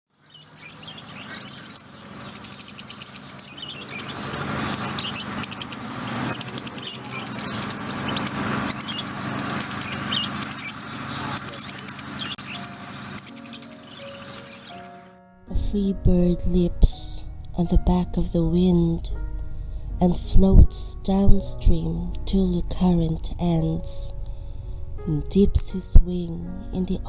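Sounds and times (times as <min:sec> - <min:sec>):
songbirds chirping and singing: 0:00.2 - 0:27.0
low steady hum: 0:15.5 - 0:27.0.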